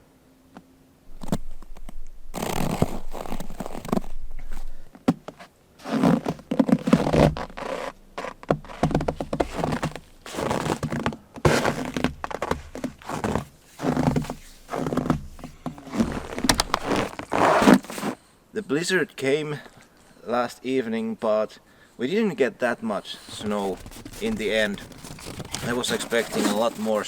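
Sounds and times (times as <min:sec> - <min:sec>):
thuds and scrapes: 0:01.1 - 0:18.2, 0:23.2 - 0:27.0.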